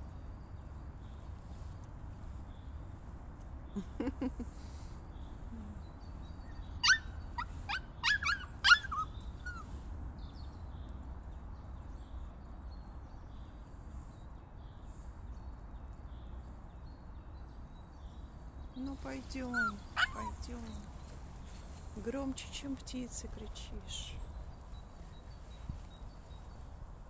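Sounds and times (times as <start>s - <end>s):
small dog yelping: 6.8s - 9.8s, 19.5s - 20.8s.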